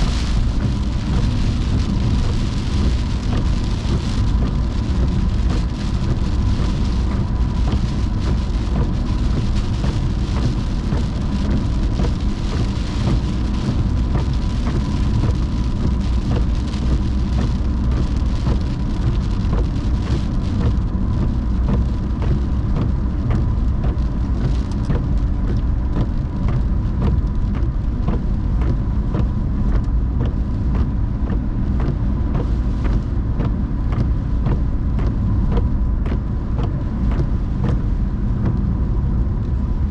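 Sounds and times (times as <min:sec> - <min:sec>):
wet road spray hiss: 0:00.0 - 0:30.9
car road and engine rumble: 0:00.0 - 0:39.9
raindrops ticking on car: 0:00.0 - 0:39.9.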